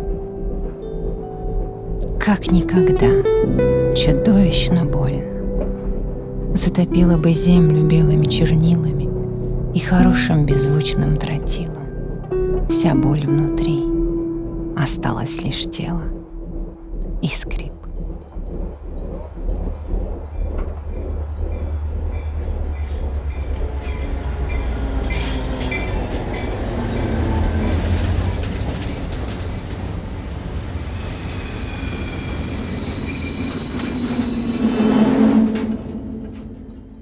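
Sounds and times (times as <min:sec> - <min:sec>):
train rumbling: 0:00.0 - 0:37.0
metallic wheel squeal: 0:30.8 - 0:37.0.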